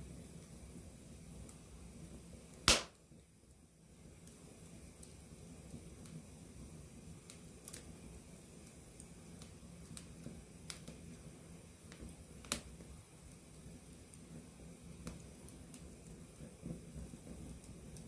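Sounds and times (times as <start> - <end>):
campfire flames rumbling: 0.0 - 18.0
burning wood crackling and popping: 1.4 - 3.2, 7.2 - 18.0.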